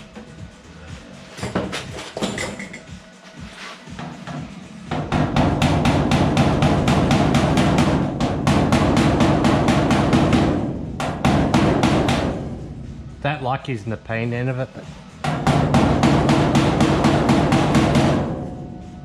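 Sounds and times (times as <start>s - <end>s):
hammer striking sheet metal: 4.9s - 12.8s, 15.2s - 19.0s.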